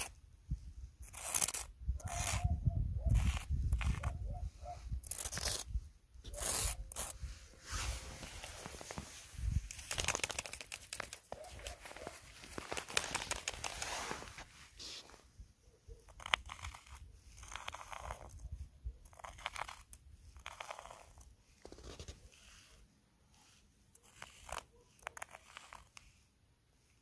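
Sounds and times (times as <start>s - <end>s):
footsteps crunching through snow: 7.1s - 9.6s, 11.2s - 15.2s.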